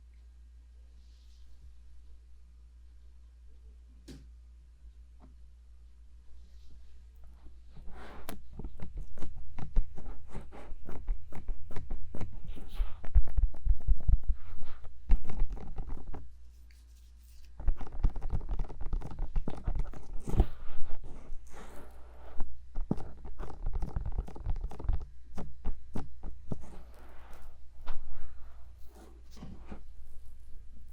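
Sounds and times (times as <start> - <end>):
fingers tapping on microphone: 22.7 - 26.6.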